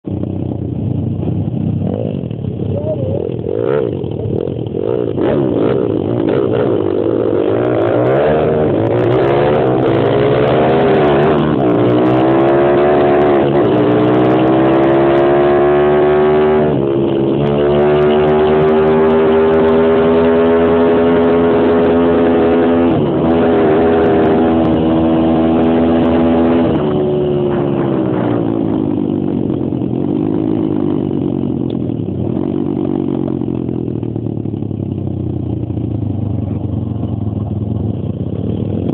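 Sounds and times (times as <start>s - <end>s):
pit bike engine revving hard: 4.8s - 28.8s.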